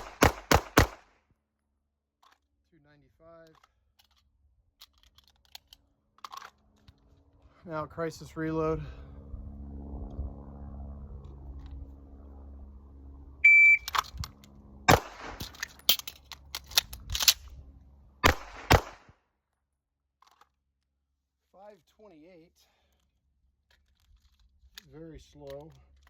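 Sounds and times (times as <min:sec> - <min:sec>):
pistol shots: 0:00.0 - 0:01.1, 0:14.9 - 0:15.6, 0:18.2 - 0:19.1
low hum: 0:05.7 - 0:18.8
shot timer beep: 0:13.4 - 0:13.9.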